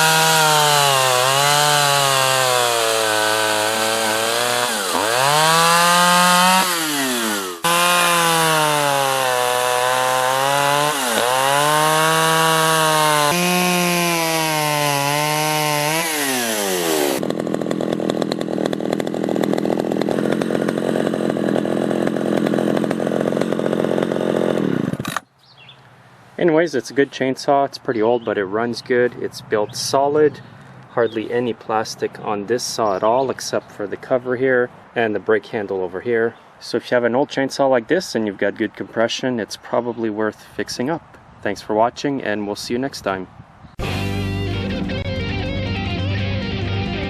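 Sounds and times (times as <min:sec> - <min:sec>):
chainsaw cutting wood: 0:00.0 - 0:25.3
chainsaw idling: 0:00.0 - 0:25.3.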